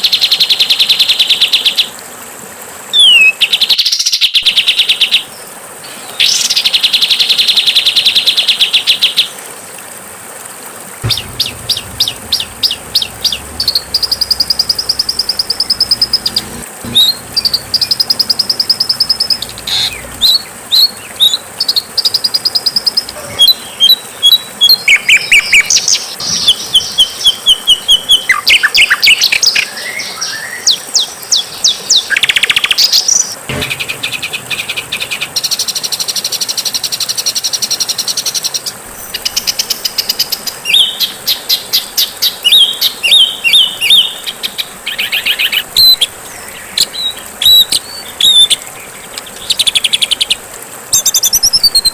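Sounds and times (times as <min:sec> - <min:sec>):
songbirds singing trills and whistles: 0:03.0 - 0:09.3, 0:11.0 - 0:51.9
steady buzzy trill: 0:11.0 - 0:21.2.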